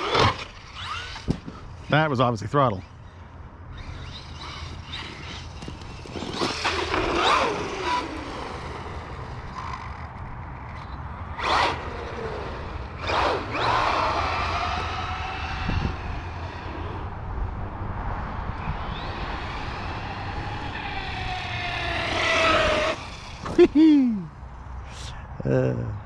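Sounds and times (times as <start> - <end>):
electric motor whining: 0.0 - 1.6, 3.7 - 10.8, 11.4 - 17.2, 18.5 - 23.8.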